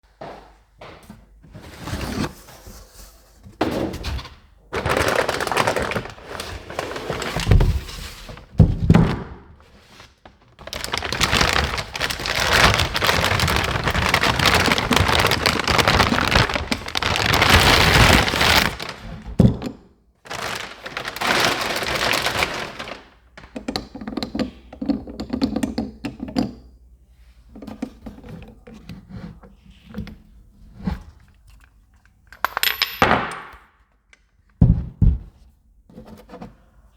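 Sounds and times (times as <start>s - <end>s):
scraping and rustling: 4.8s - 8.6s, 9.7s - 19.3s, 20.3s - 23.5s.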